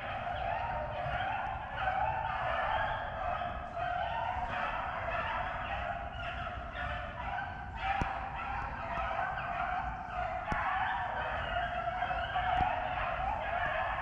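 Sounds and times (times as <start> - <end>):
hounds baying: 0.0 - 14.0.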